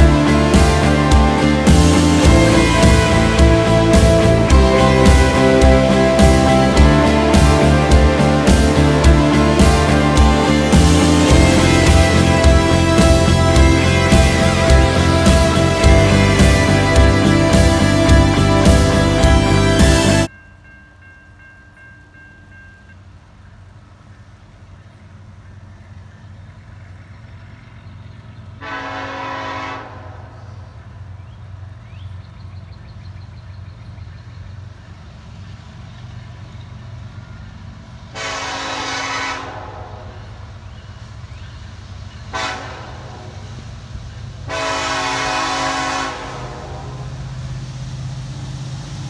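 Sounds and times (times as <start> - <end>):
locomotive horn blasts: 0.0 - 20.3, 28.6 - 30.6, 38.2 - 40.3, 42.3 - 43.3, 44.5 - 47.1
low rumble: 0.0 - 20.3.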